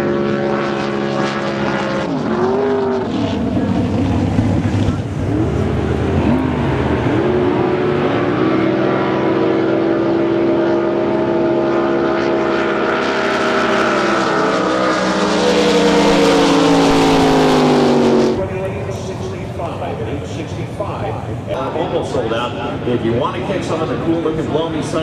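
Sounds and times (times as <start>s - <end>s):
boat engine at high revs: 0.0s - 21.6s.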